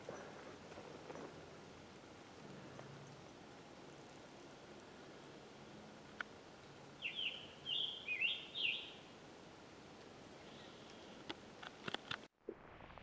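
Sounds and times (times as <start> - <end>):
songbird singing whistled notes: 7.0 - 9.1.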